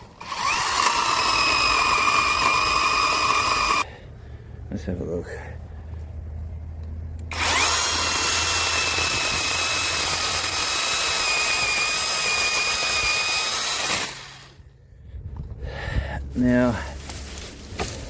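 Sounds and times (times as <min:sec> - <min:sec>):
electric chainsaw motor whine: 0:00.1 - 0:03.8, 0:07.3 - 0:14.6.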